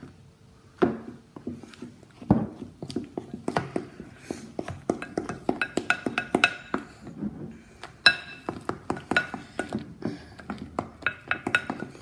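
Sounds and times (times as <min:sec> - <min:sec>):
spoon clinking against glass bowl: 0:08.0 - 0:09.7, 0:11.0 - 0:12.0.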